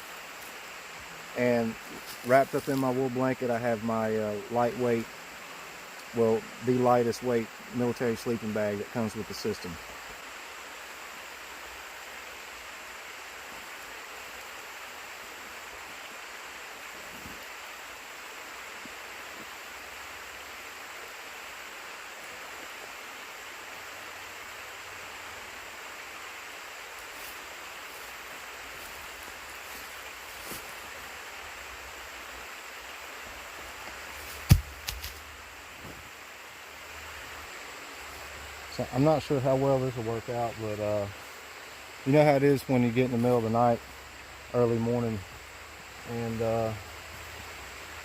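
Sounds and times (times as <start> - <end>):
creek water running: 0.0 - 48.0
sharp knock: 34.4 - 35.2.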